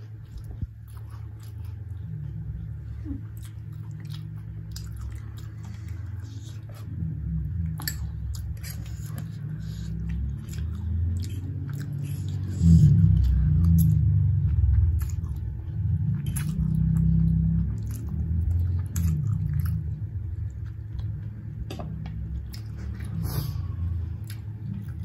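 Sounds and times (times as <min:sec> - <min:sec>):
chewing and slurping noodles: 0:00.0 - 0:21.5.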